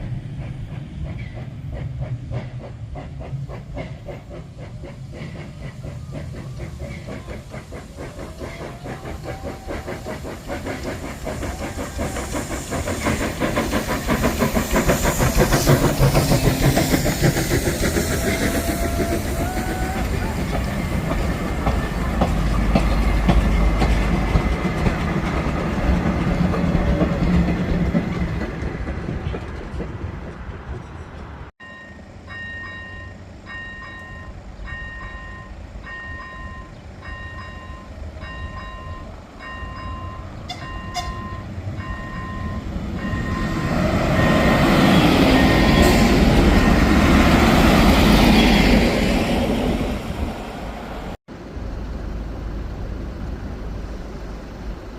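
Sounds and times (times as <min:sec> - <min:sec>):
train passing over crossing: 0:00.0 - 0:54.9
train rumbling: 0:00.0 - 0:54.9
level-crossing warning bell: 0:31.6 - 0:44.6.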